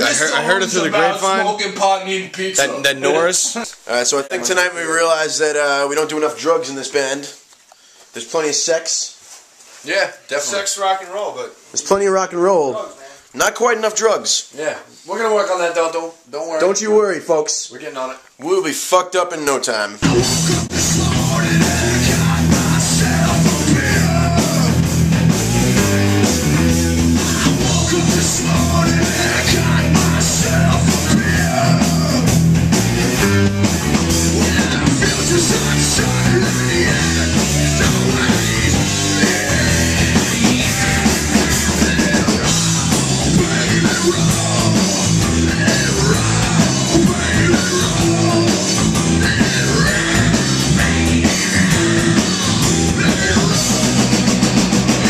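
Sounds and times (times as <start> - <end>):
heavy rock music with drums: 20.0 - 55.0.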